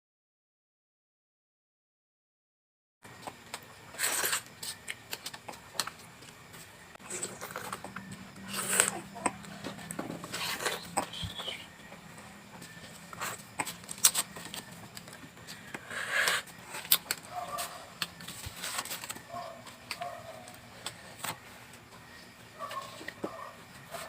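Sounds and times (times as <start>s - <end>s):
food crunch: 7.0s - 11.6s, 12.7s - 17.3s
faint short calls: 8.4s - 11.8s.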